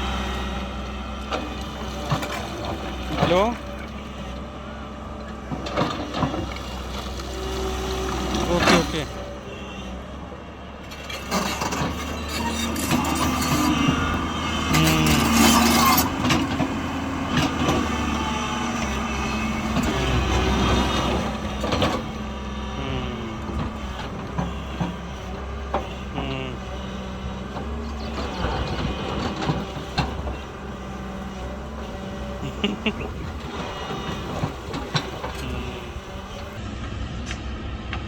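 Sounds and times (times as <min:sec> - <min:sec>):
diesel engine hum: 0:00.0 - 0:38.0
machinery knocks and clanks: 0:01.2 - 0:04.4, 0:10.9 - 0:22.7, 0:23.3 - 0:38.0.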